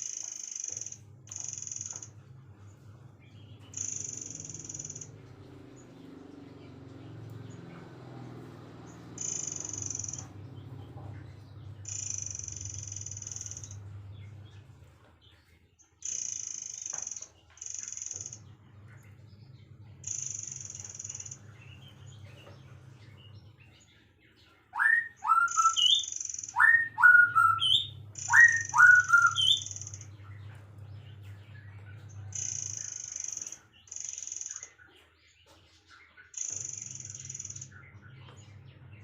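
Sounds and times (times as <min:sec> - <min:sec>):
low hum: 0:00.0 - 0:25.8, 0:26.4 - 0:33.8
birds rising whistles: 0:03.4 - 0:06.0, 0:08.9 - 0:14.8, 0:15.9 - 0:35.2, 0:35.8 - 0:39.0.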